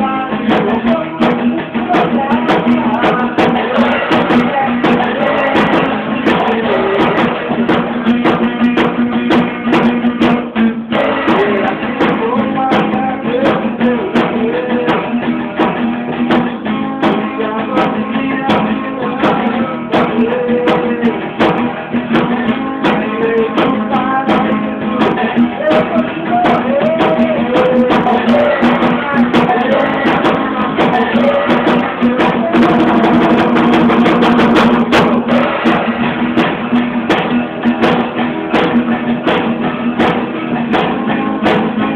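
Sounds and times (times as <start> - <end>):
small band playing live: 0.0 - 41.9
strummed guitar: 0.0 - 41.9.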